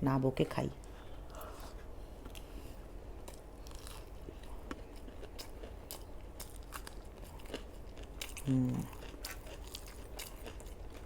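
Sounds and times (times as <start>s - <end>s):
chewing with crisp bites: 3.2s - 11.0s.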